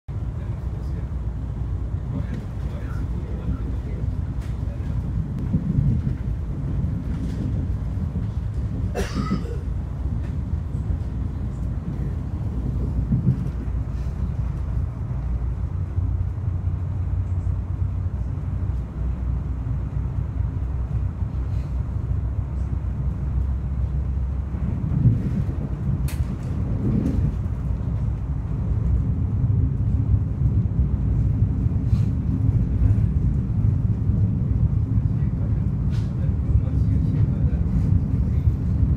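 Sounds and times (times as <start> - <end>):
train rumbling in motion: 0.1 - 38.9
click: 26.0 - 26.5.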